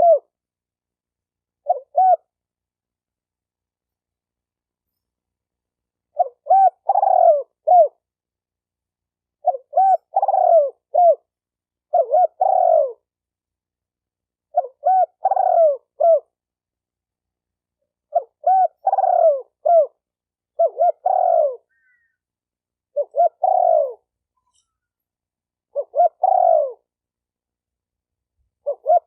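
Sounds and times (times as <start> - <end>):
dove cooing: 0.0 - 0.3, 1.6 - 2.4, 6.1 - 8.0, 9.4 - 11.3, 11.9 - 13.1, 14.5 - 16.4, 18.1 - 20.0, 20.6 - 22.2, 22.9 - 24.1, 25.7 - 26.9, 28.6 - 29.0.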